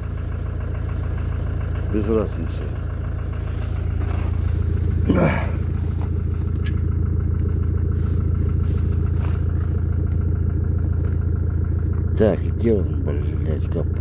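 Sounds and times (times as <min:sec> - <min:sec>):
diesel engine idling with knock: 0:00.0 - 0:14.0.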